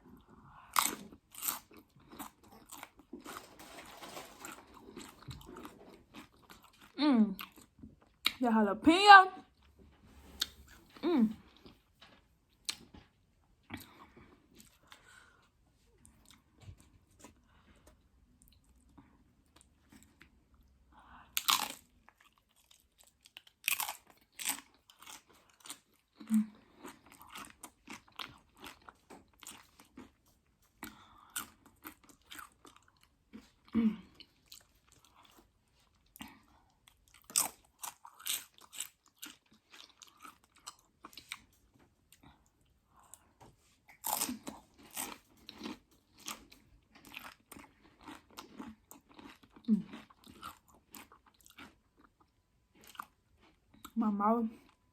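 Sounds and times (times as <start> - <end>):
crunchy chewing: 0.2 - 8.4, 21.4 - 54.0
crunching chip bites: 21.4 - 25.9.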